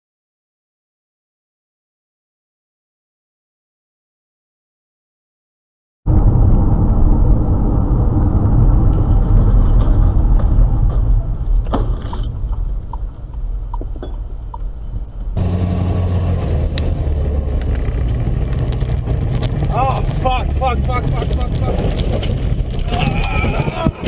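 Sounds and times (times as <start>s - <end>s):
road and engine rumble: 6.1s - 24.0s.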